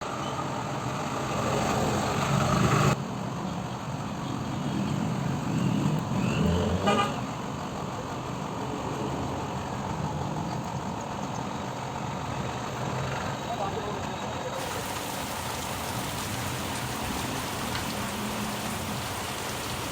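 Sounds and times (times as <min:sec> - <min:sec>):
road traffic noise: 0:00.0 - 0:19.9
vehicle horn toot: 0:06.8 - 0:07.2.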